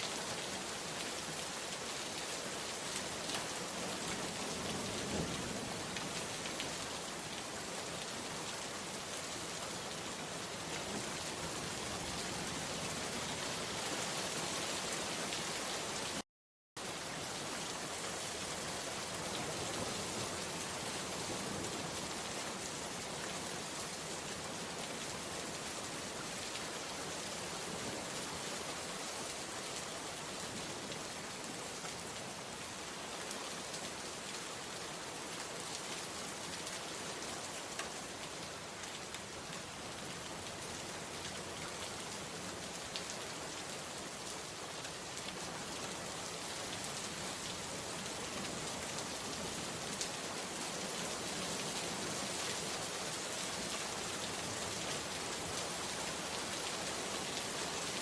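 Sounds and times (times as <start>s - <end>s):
rain falling: 0.0s - 16.2s, 16.8s - 58.0s.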